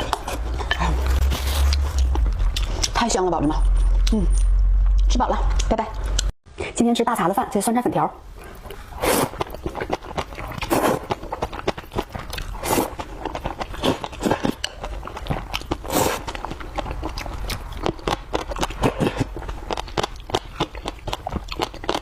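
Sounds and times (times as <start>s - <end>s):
wet chewing and smacking: 8.4s - 22.0s
slurping noodles: 8.8s - 14.6s, 15.7s - 16.3s.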